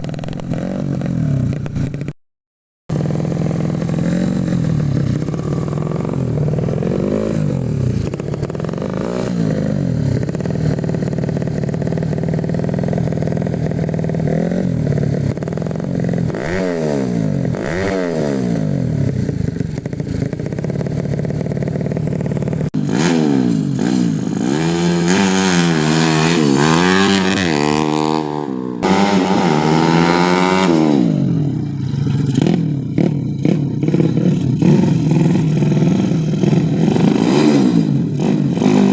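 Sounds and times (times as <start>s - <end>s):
motorcycle engine revving: 0.0s - 2.2s, 2.9s - 38.9s.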